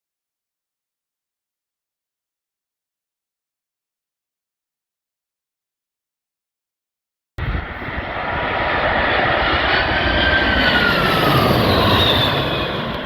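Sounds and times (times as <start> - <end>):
airliner passing overhead: 7.4 - 13.0
jet engine whine falling: 7.4 - 13.0.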